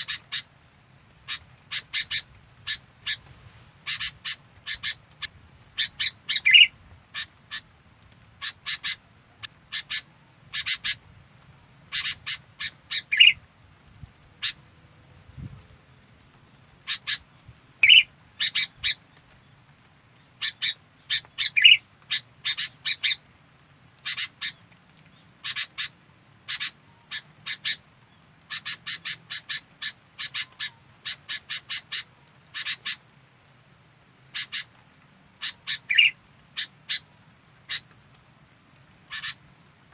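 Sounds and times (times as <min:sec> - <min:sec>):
bulbul calling: 0:00.0 - 0:00.5, 0:01.3 - 0:07.7, 0:08.4 - 0:11.0, 0:11.9 - 0:13.4, 0:17.8 - 0:19.0, 0:20.4 - 0:23.2, 0:24.0 - 0:24.6, 0:25.4 - 0:25.9, 0:26.5 - 0:27.8, 0:28.5 - 0:33.0, 0:34.3 - 0:34.8, 0:35.4 - 0:37.9, 0:39.1 - 0:39.4.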